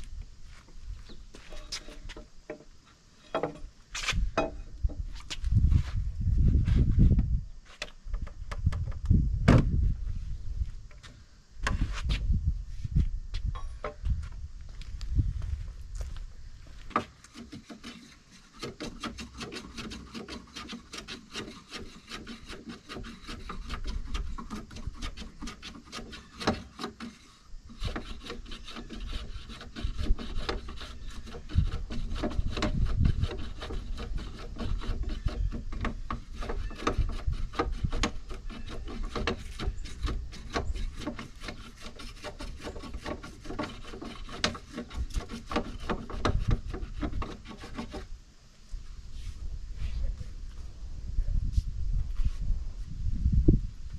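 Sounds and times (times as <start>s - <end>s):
rubbing and scraping on wood: 0.0s - 8.4s, 16.7s - 48.1s.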